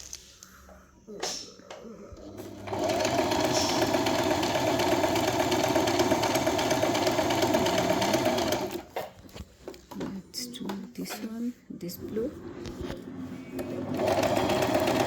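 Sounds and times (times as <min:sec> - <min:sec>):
sewing machine stitching: 0:02.2 - 0:09.1, 0:13.0 - 0:15.0.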